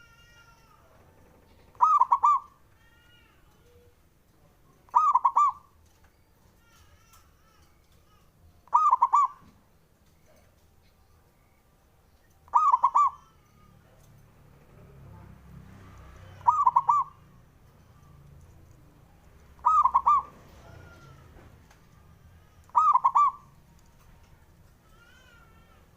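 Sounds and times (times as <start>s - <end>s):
dove cooing: 1.5s - 2.6s, 4.9s - 5.8s, 8.6s - 9.6s, 12.5s - 13.3s, 16.3s - 17.3s, 19.6s - 21.1s, 22.7s - 23.7s.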